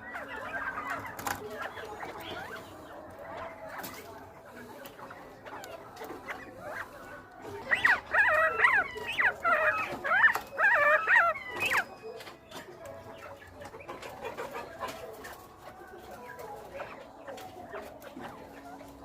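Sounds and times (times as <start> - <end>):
quail calling: 0.0 - 12.3.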